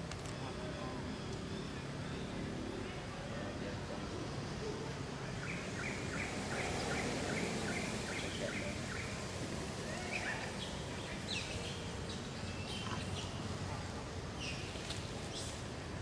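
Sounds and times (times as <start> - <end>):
forest background noise: 0.0 - 16.0.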